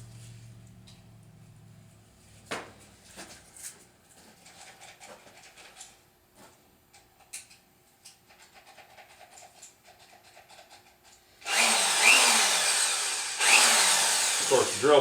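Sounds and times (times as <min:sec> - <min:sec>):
electric drill whining: 0:11.4 - 0:15.0.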